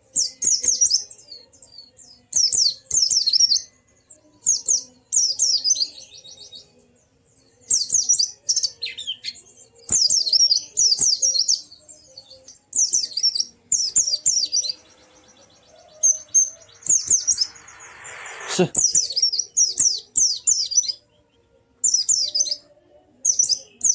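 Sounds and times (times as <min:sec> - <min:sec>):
bird warbling twitter: 0:13.7 - 0:19.8.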